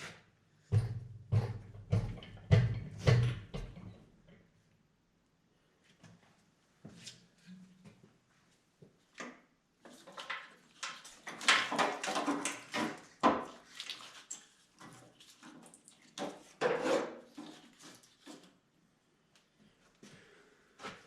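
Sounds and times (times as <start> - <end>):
metal clanks knocks and scrapes: 0.7 - 3.9, 16.2 - 18.4.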